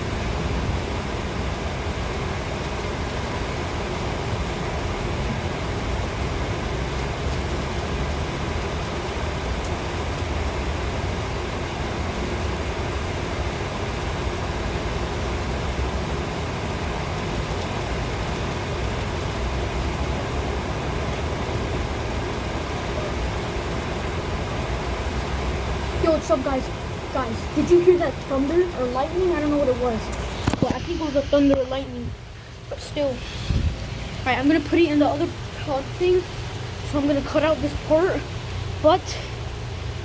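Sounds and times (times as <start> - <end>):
rain hiss: 0.0 - 40.0
wind buffeting microphone: 27.2 - 36.1.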